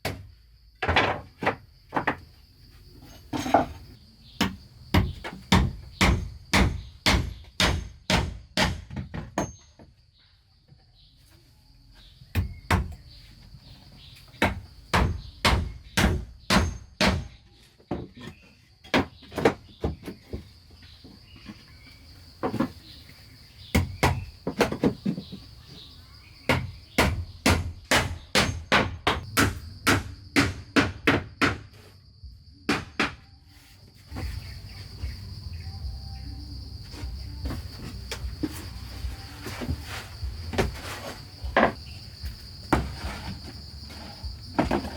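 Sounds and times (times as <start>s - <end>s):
crickets chirring: 0.0s - 44.9s
hand tool striking wood: 4.4s - 9.8s, 14.4s - 20.2s, 23.7s - 25.4s, 26.5s - 31.9s, 40.5s - 44.9s.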